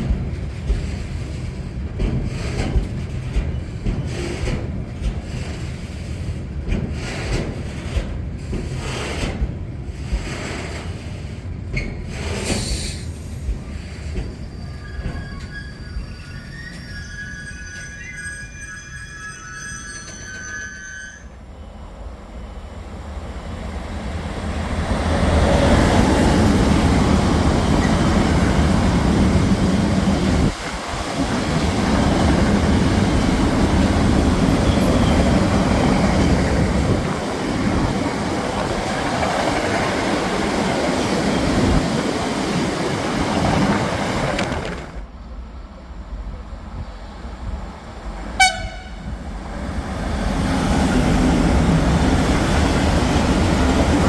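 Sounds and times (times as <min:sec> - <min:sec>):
freight train rumble and wheel noise: 0:00.0 - 0:54.0
train horn toot: 0:48.4 - 0:49.2.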